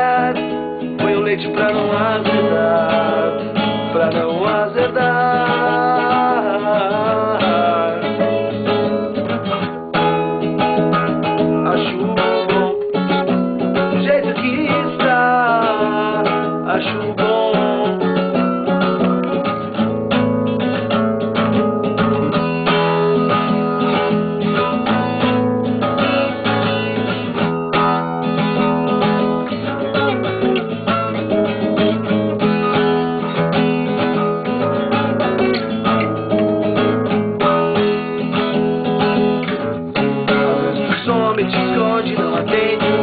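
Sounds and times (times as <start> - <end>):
strummed guitar chords: 0.0 - 43.0.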